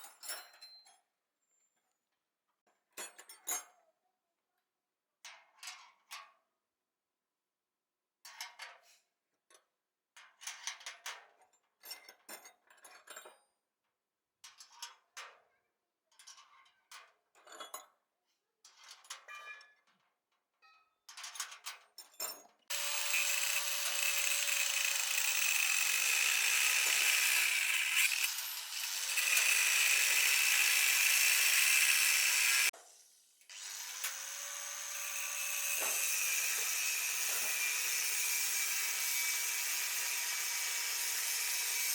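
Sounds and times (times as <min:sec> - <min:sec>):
power tool running: 0:22.7 - 0:32.7, 0:33.5 - 0:41.9.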